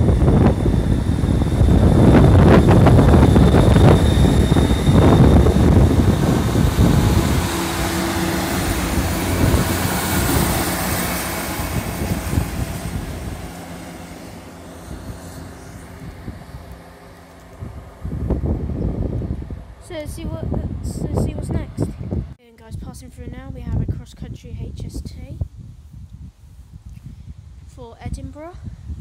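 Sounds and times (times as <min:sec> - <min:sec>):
diesel train engine running: 0:00.0 - 0:22.4.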